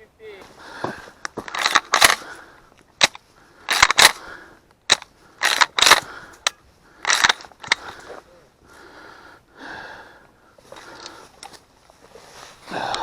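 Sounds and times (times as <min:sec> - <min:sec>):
stalks snapping: 0:01.2 - 0:02.3, 0:03.0 - 0:04.2, 0:04.8 - 0:08.1
footsteps through dry brush: 0:10.6 - 0:13.0.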